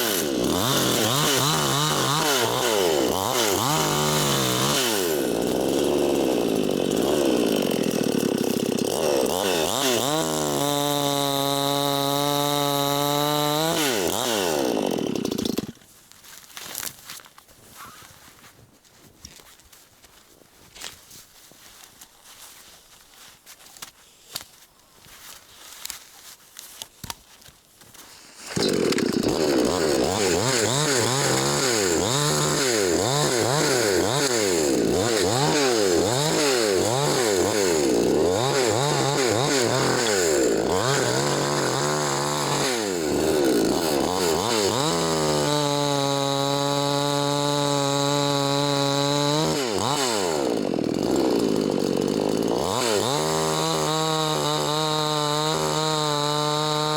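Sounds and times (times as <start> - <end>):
chainsaw cutting wood: 0.0 - 15.9, 27.9 - 56.9.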